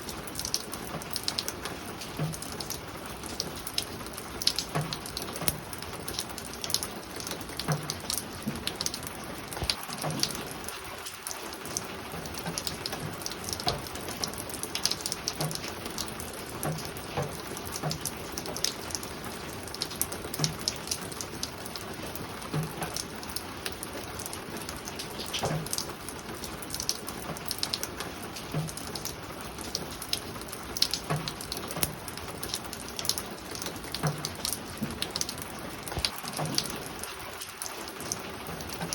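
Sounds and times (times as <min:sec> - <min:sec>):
rain falling on a roof: 0:00.0 - 0:38.9.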